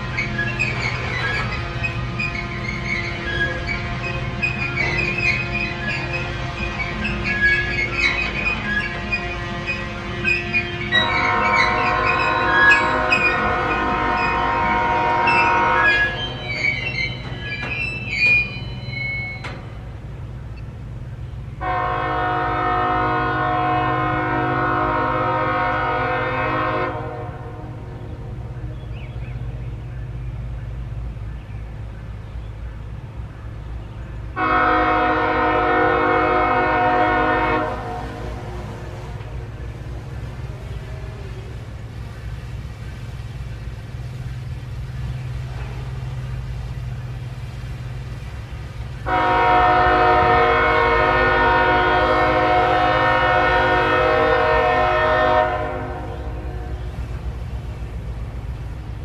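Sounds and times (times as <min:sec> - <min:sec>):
locomotive horn blasts: 0:00.0 - 0:17.4, 0:21.6 - 0:28.0, 0:34.3 - 0:41.6, 0:48.9 - 0:57.1
low rumble of train: 0:00.0 - 0:59.0.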